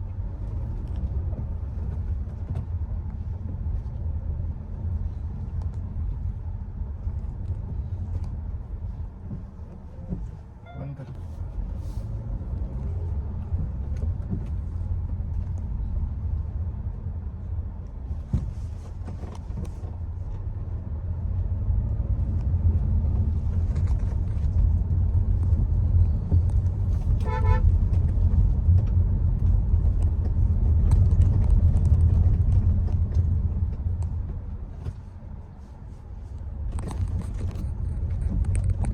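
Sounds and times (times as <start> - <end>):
car road and engine rumble: 0.0 - 38.9
car horn toot: 10.6 - 11.2, 27.2 - 27.7.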